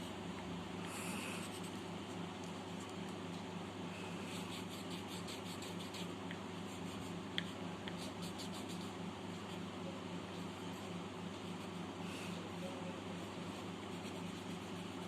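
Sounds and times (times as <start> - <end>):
steady low hum: 0.0 - 15.0
pencil scratching on paper: 1.0 - 1.8, 4.2 - 7.2, 7.9 - 9.7, 13.2 - 15.0.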